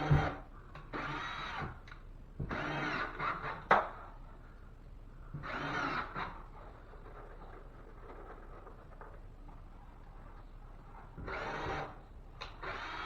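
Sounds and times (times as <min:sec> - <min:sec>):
cordless drill whirring: 0:02.5 - 0:03.4, 0:05.4 - 0:06.3, 0:11.2 - 0:12.0, 0:12.6 - 0:13.0.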